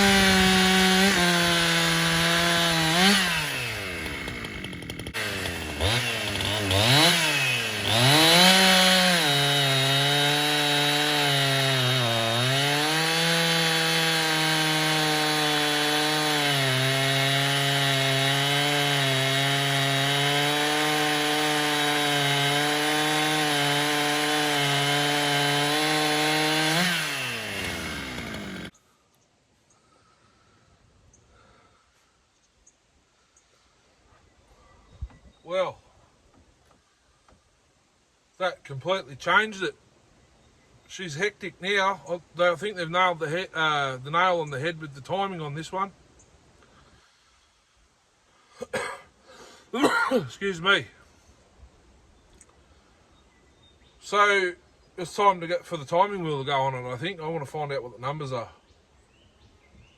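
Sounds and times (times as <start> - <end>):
chainsaw running at high revs: 0.0 - 28.7.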